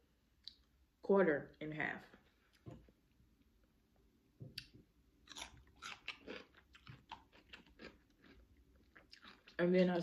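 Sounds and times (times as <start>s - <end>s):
crunchy chewing of cucumber: 4.6s - 9.9s.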